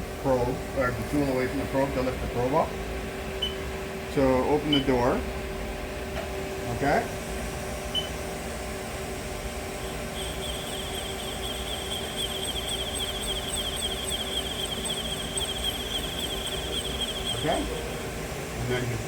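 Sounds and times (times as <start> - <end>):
lathe humming: 8.4 - 19.0
high wavering whine: 9.5 - 19.0.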